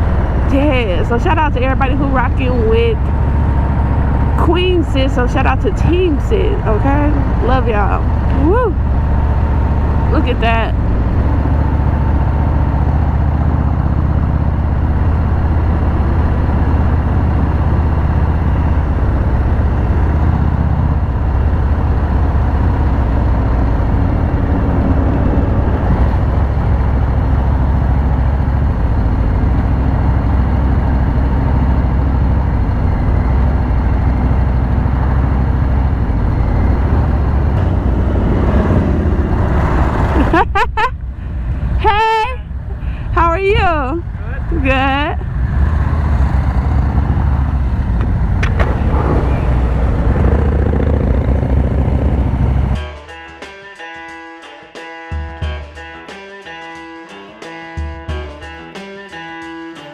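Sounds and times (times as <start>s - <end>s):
motorcycle engine running: 0.0s - 52.8s
rushing noise: 18.0s - 29.4s, 32.7s - 41.8s, 45.3s - 52.8s.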